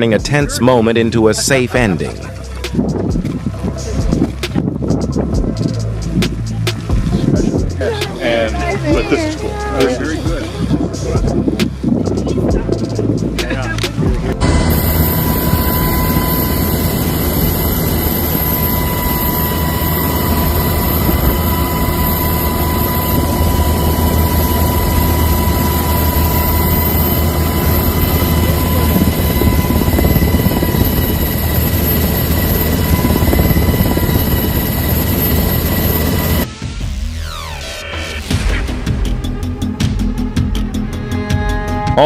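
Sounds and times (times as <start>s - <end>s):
helicopter running: 0.0s - 41.4s.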